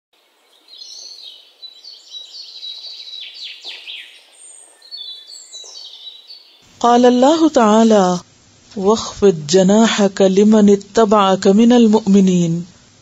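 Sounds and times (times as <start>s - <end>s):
birds chirping and singing: 0.2s - 8.1s
downward-sweeping bird calls: 0.2s - 8.1s.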